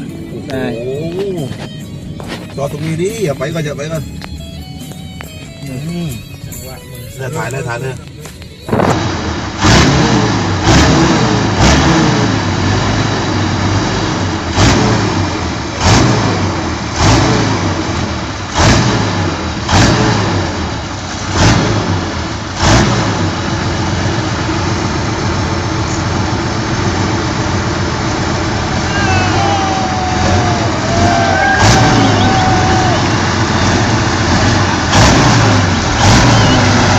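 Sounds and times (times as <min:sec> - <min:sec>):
motorcycle engine revving: 0:08.0 - 0:36.9.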